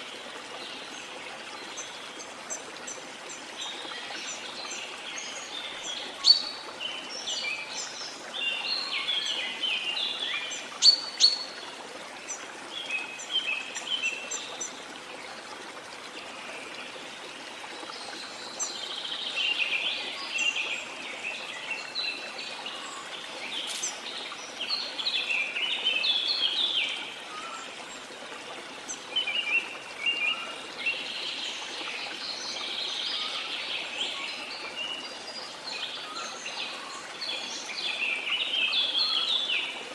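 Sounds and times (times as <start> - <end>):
falling water: 0.0 - 39.9
birds chirping: 21.4 - 27.0.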